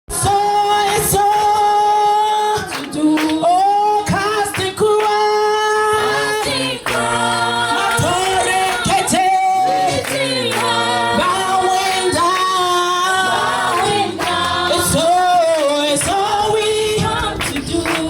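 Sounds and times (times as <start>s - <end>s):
voices singing a cappella: 0.1s - 18.0s.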